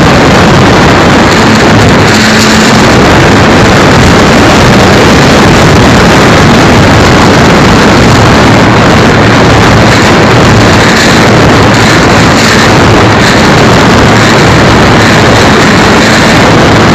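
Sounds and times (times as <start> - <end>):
model plane motor and propeller: 0.0 - 16.9
wind noise: 0.0 - 16.9.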